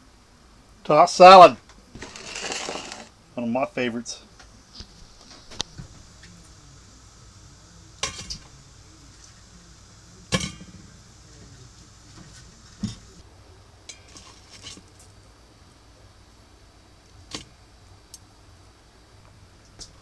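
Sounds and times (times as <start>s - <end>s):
tableware clinking: 2.0s - 3.1s, 8.0s - 8.5s, 10.3s - 11.0s, 12.2s - 13.2s.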